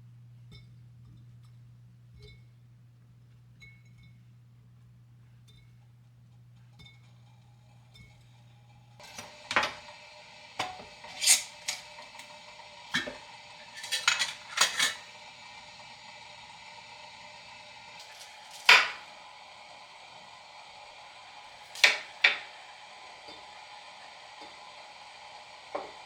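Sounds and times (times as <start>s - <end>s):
dishes and utensils clinking: 9.0s - 9.9s, 10.6s - 15.2s, 18.0s - 19.1s, 21.7s - 22.5s.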